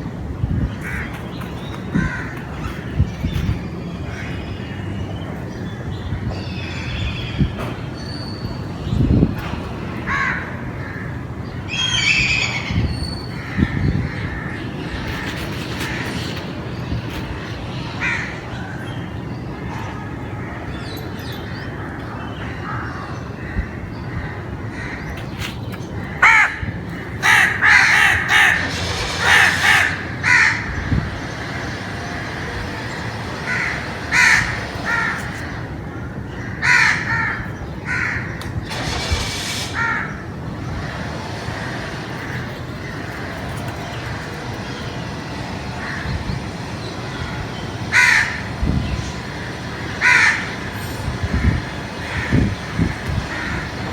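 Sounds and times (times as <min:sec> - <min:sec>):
steady background noise: 0:00.0 - 0:53.9
crows cawing: 0:00.8 - 0:03.4, 0:10.0 - 0:12.4, 0:26.0 - 0:31.3, 0:32.6 - 0:38.4, 0:47.9 - 0:48.6, 0:49.3 - 0:53.9.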